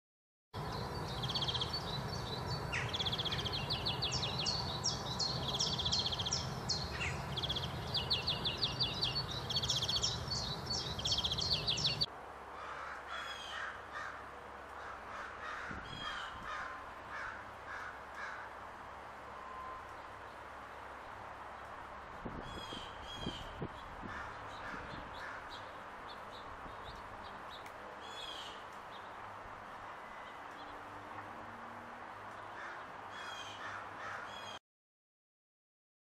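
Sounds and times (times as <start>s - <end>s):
spaced lower bird calls: 0.6s - 14.2s, 22.4s - 29.2s, 32.3s - 34.6s
songbirds trilling: 0.6s - 18.6s, 22.4s - 29.3s, 32.3s - 34.6s
low background noise: 0.6s - 34.6s.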